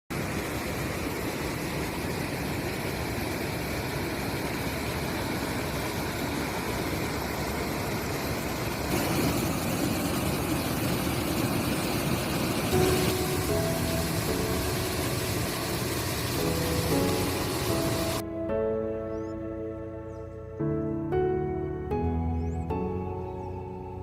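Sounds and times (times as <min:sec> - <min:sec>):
waterfall rushing: 0:04.9 - 0:18.2.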